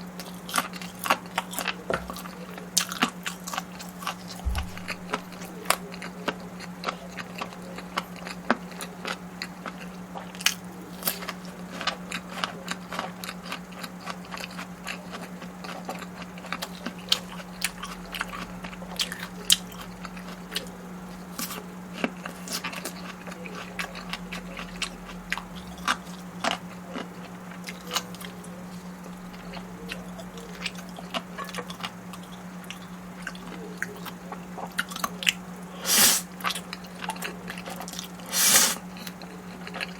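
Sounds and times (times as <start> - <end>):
chewing and mouth smacks: 0.2 - 39.9
low hum: 4.4 - 5.8.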